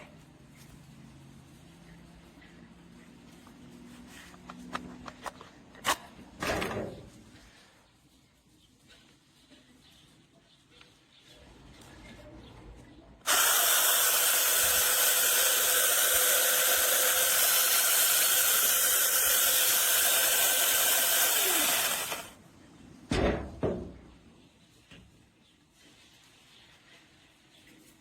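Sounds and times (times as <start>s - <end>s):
electric chainsaw running: 13.2s - 22.4s.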